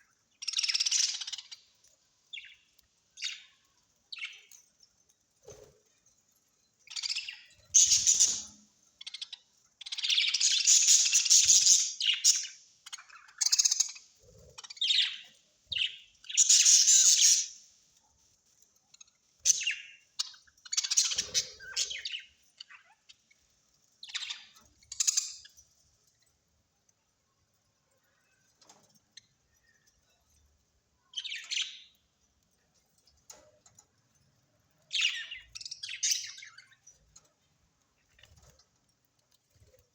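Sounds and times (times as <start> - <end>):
parrots squawking and chattering: 0.4 - 1.8, 6.9 - 17.6, 19.0 - 23.4, 24.0 - 25.6.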